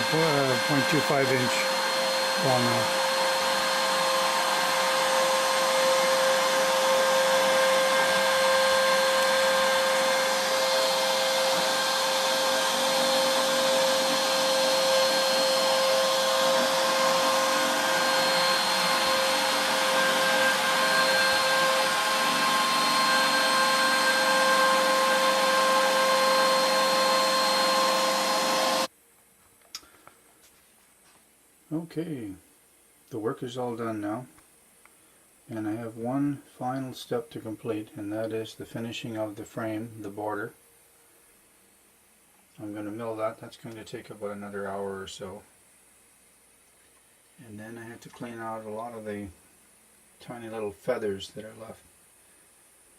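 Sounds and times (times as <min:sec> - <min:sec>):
router bit cutting wood hiss: 0:00.0 - 0:28.9
router spindle high whine: 0:00.0 - 0:28.9.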